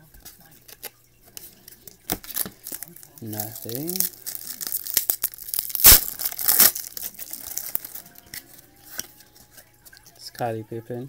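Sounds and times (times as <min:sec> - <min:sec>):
card handling: 0:00.1 - 0:10.1
wrapper tearing and crinkling: 0:02.1 - 0:09.1.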